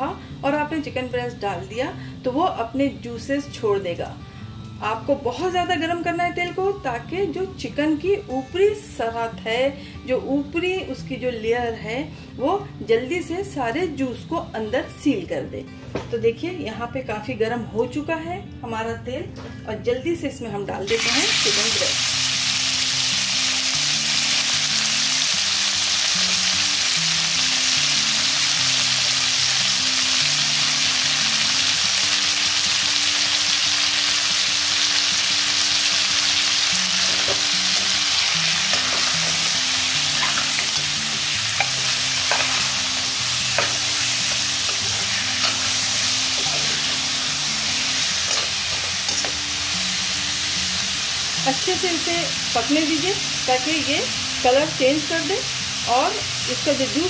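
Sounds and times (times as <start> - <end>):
chicken sizzling in oil: 20.9 - 57.0
metal spoon scraping pan: 40.1 - 40.9, 41.5 - 47.0.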